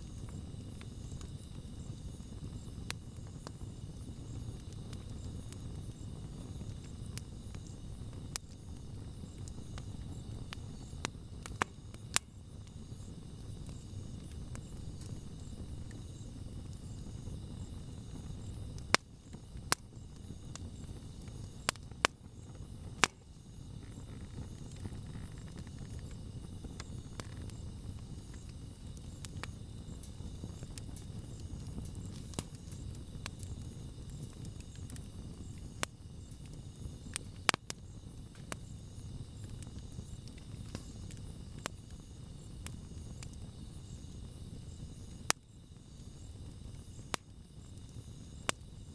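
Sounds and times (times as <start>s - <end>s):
campfire crackling and popping: 0.0s - 48.9s
insects chirping: 0.0s - 48.9s.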